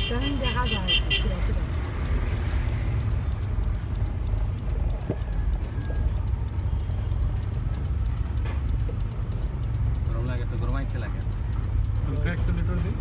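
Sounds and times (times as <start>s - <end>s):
car engine and road rumble: 0.0s - 13.0s
faint rapid ticking: 0.0s - 13.0s.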